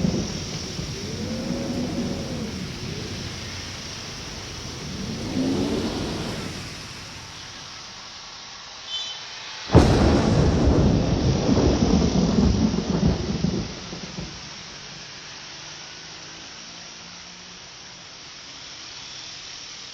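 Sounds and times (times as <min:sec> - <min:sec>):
thunder crack and rumble: 0:00.0 - 0:08.1, 0:09.7 - 0:14.8
steady rain: 0:00.0 - 0:19.9.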